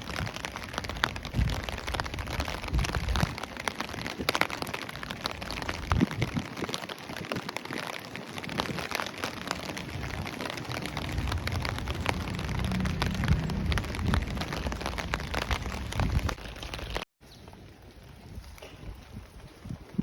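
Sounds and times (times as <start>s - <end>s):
raindrops ticking: 0.0s - 18.7s
steady rain: 0.0s - 20.0s
low rumble: 9.9s - 17.0s.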